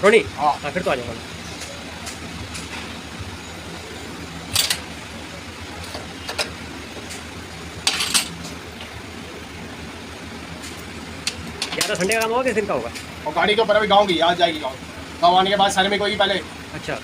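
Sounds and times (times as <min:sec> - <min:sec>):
low engine-like hum: 0:00.0 - 0:17.0.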